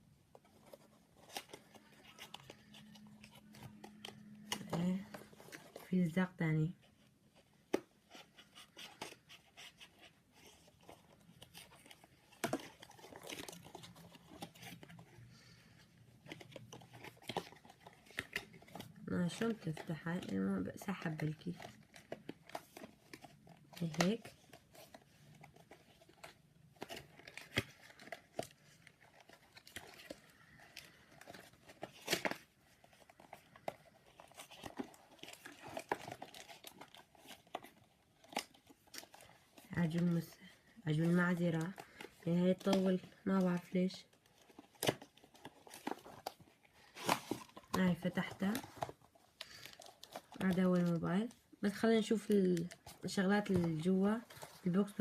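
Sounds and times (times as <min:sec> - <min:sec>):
crinkling handling noises: 0:00.0 - 0:55.0.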